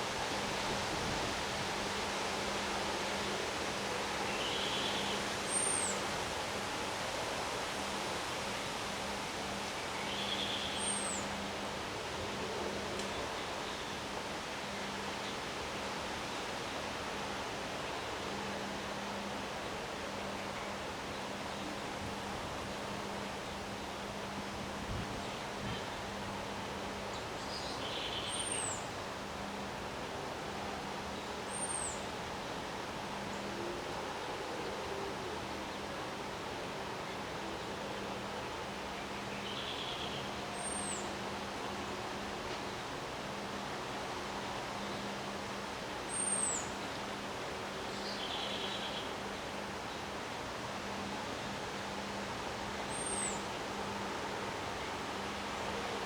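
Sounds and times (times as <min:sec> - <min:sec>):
songbird calling: 0:52.9 - 0:53.4.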